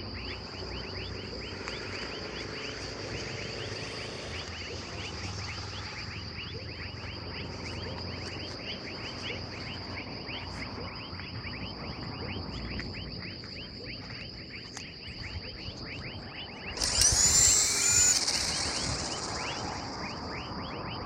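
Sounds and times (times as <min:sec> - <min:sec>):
high-pitched insect drone: 0:00.0 - 0:11.5, 0:14.0 - 0:21.0
short falling chirps: 0:16.7 - 0:20.5.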